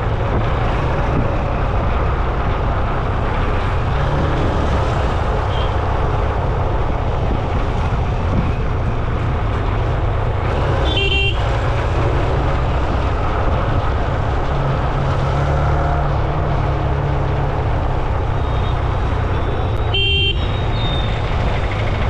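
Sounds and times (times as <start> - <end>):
road traffic rumble: 0.0 - 22.0
vehicle horn toot: 10.9 - 11.4, 19.8 - 21.1.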